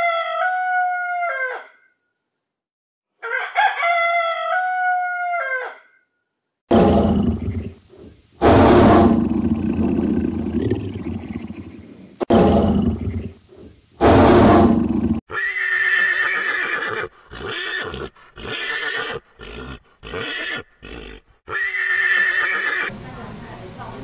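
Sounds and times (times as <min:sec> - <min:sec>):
loud rough burst: 0:08.4 - 0:10.1, 0:14.0 - 0:15.2
horse whinnying: 0:14.4 - 0:22.9.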